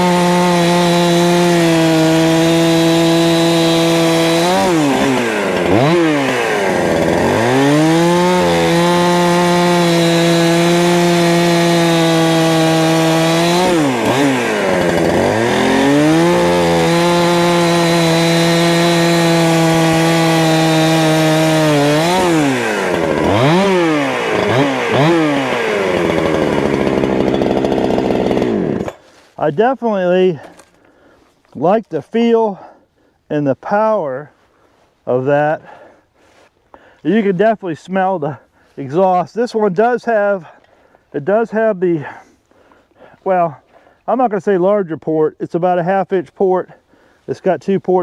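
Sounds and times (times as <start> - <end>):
chainsaw cutting wood: 0.0 - 31.1.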